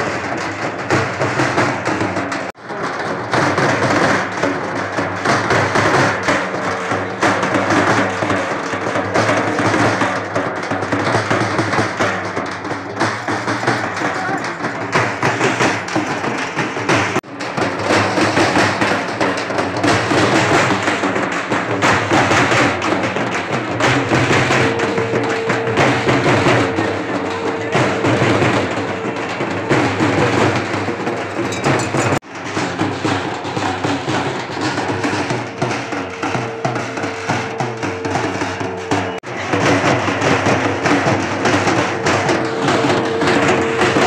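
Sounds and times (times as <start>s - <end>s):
frame drums beaten with sticks: 0.0s - 44.0s
held note: 22.8s - 32.2s, 35.3s - 44.0s.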